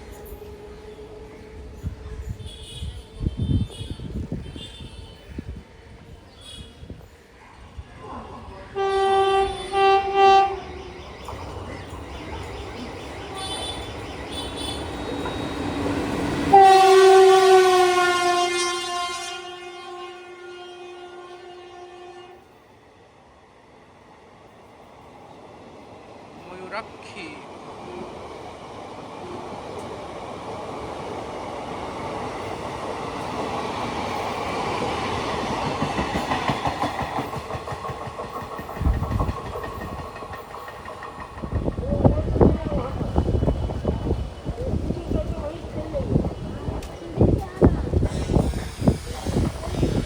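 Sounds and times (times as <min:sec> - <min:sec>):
train approaching rumble: 0:00.0 - 0:50.0
train air horn: 0:02.3 - 0:05.4, 0:08.7 - 0:10.8, 0:13.4 - 0:15.3, 0:16.4 - 0:22.5
wheels clacking over rail joints: 0:32.3 - 0:43.7.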